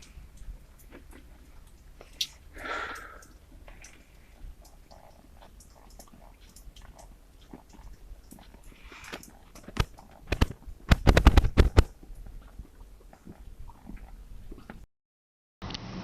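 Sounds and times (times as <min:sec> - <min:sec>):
sharp knocks and clatter: 0:09.6 - 0:11.9.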